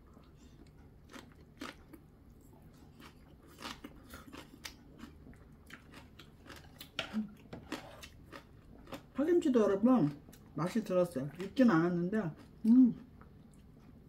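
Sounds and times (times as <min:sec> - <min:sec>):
person chewing crunchy food: 0:00.0 - 0:09.2, 0:12.3 - 0:14.0.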